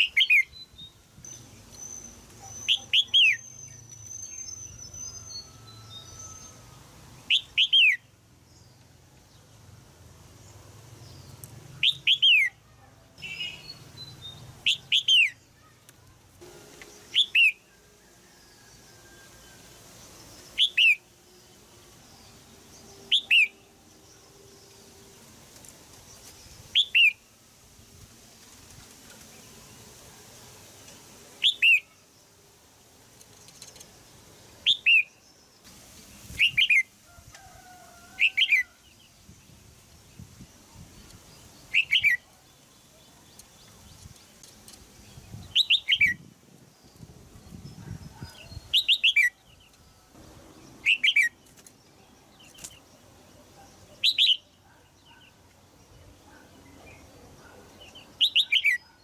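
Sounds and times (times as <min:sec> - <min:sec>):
bird giving sharp chirp calls: 0:01.3 - 0:06.6, 0:17.0 - 0:17.7, 0:41.7 - 0:42.3, 0:47.7 - 0:49.4, 0:50.8 - 0:51.4, 0:58.2 - 0:59.0.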